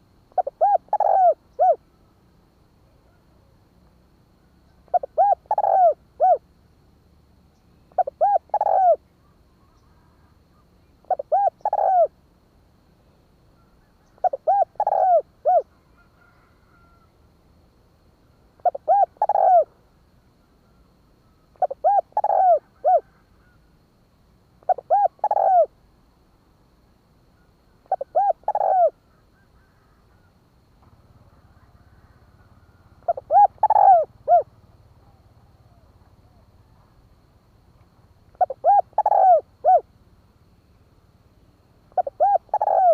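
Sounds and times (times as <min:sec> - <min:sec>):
dove cooing: 0:00.0 - 0:01.8, 0:04.8 - 0:06.4, 0:07.9 - 0:10.3, 0:11.0 - 0:12.2, 0:13.6 - 0:17.0, 0:18.6 - 0:19.8, 0:21.2 - 0:23.6, 0:24.6 - 0:25.7, 0:27.8 - 0:30.3, 0:31.2 - 0:36.5, 0:38.3 - 0:40.0, 0:41.9 - 0:42.9.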